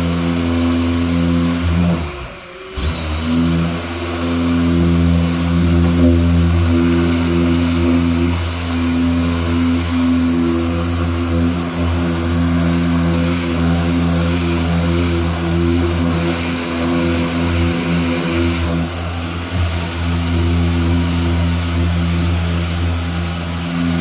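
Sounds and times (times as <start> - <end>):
workshop machine humming: 0.0 - 24.0.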